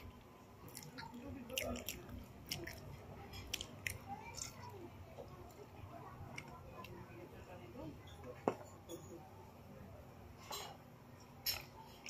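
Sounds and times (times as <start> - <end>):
faint chewing: 0.0 - 7.2, 11.2 - 12.0.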